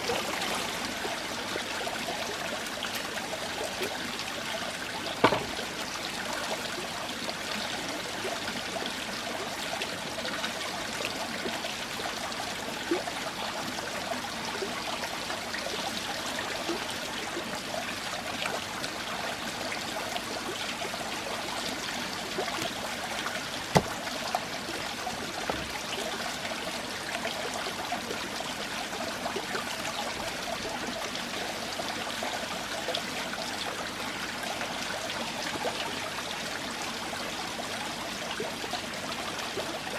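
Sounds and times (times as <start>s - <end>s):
water trickling: 0.0s - 34.2s
sharp knock: 5.2s - 5.6s.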